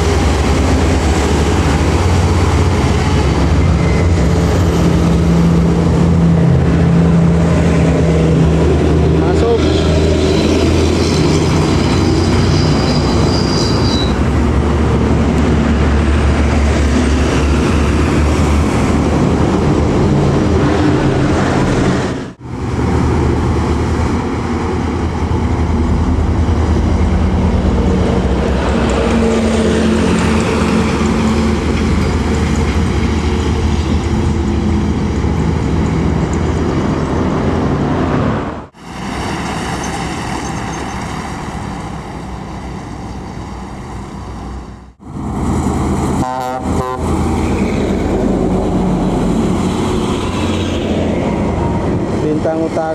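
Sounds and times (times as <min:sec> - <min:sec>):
buses engine rumble: 0:00.0 - 0:52.9.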